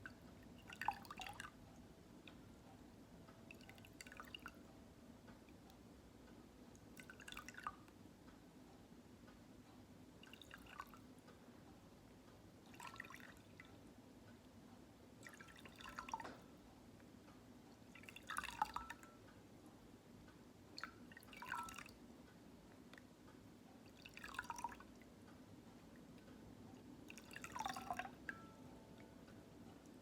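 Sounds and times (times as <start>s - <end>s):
water dripping and trickling: 0.0s - 2.4s, 3.4s - 4.7s, 6.7s - 7.9s, 10.2s - 11.0s, 12.6s - 13.8s, 15.2s - 16.5s, 17.8s - 19.2s, 20.8s - 22.0s, 23.8s - 25.2s, 26.0s - 29.1s
low steady hum: 0.0s - 30.0s.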